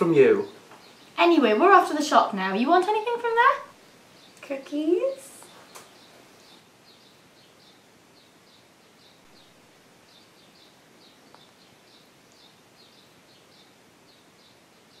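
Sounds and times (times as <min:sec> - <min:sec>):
room tone hiss: 0:00.0 - 0:15.0
small bird chirping: 0:00.0 - 0:15.0.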